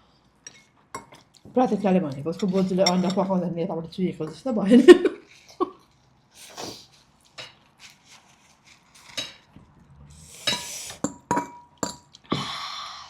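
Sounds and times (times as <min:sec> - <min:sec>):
cutlery clinking against dishes: 0:02.4 - 0:03.2.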